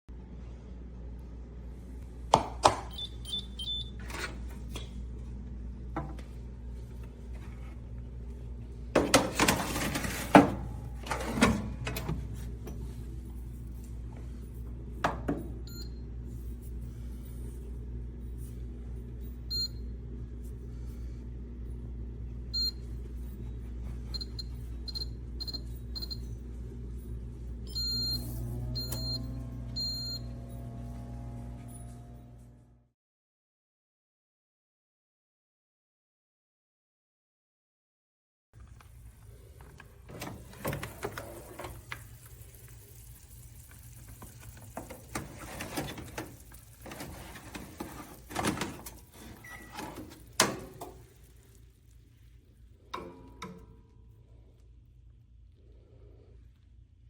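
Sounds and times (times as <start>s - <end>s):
steady low hum: 0.1s - 32.9s.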